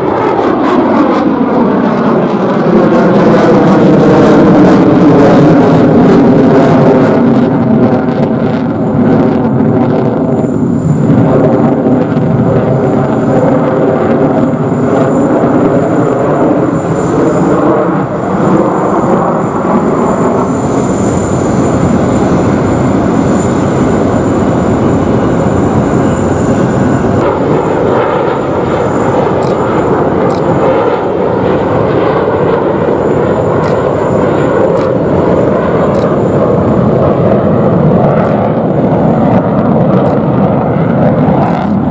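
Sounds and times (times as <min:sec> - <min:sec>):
fighter jet roar: 0:00.0 - 0:41.9.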